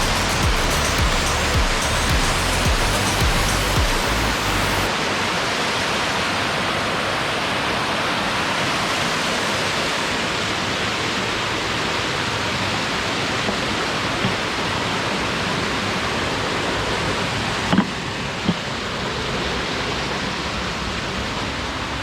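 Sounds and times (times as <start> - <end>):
low background music tones: 0.0 - 4.9.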